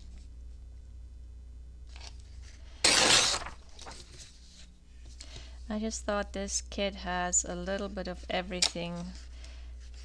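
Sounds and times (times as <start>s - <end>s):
paper handling: 1.9s - 4.7s
paper ripping: 2.8s - 4.3s.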